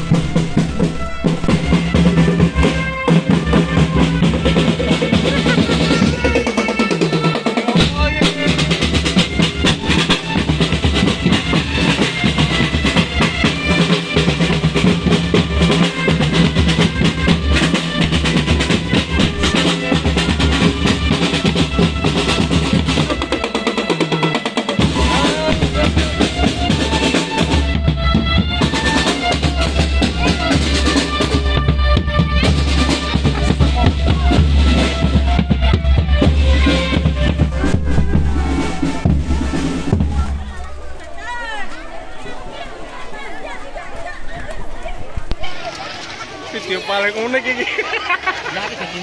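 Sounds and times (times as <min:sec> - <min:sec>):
snare and bass drums beating: 0:00.0 - 0:40.5
marching band playing: 0:00.0 - 0:43.6.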